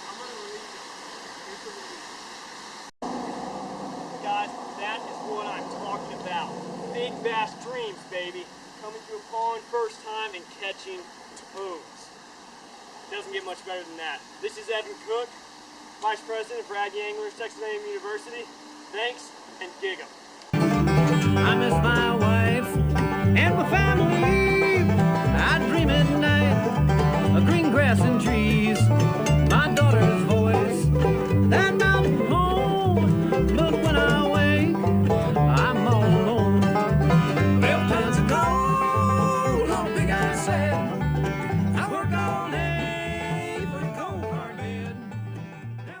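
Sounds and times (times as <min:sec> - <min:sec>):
country music with plucked strings: 0:20.5 - 0:46.0.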